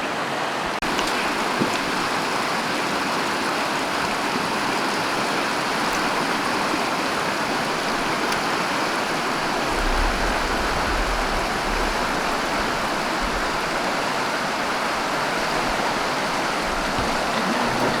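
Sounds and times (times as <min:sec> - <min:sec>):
flowing water rushing: 0:00.0 - 0:18.0
low rumbles on microphone: 0:09.4 - 0:14.0.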